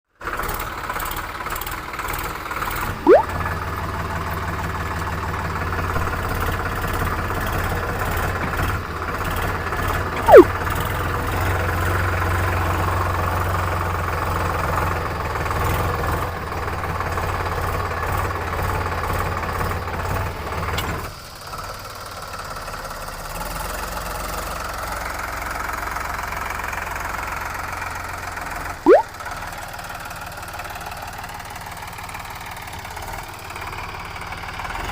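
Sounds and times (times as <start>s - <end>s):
short sliding chirps: 3.1s - 3.3s, 10.3s - 10.5s
tractor diesel engine running: 3.7s - 20.7s.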